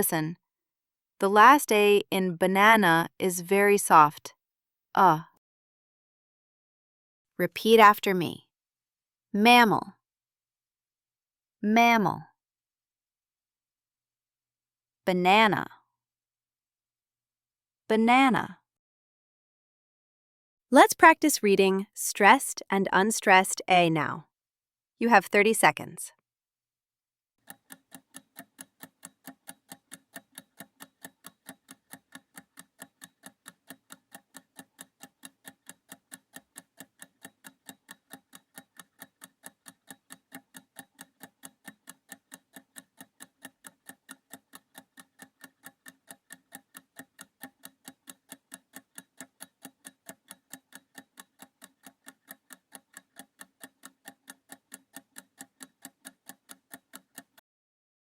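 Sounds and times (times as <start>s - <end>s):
timer ticking: 27.4s - 57.4s.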